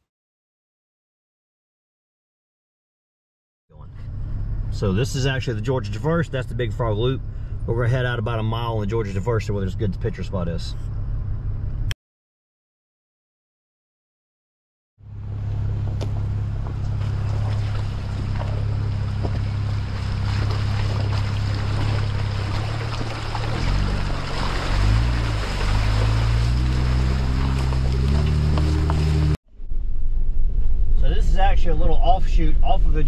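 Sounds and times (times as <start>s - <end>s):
car engine running: 3.8s - 11.9s, 15.0s - 33.0s
tyre and road noise: 15.0s - 32.2s.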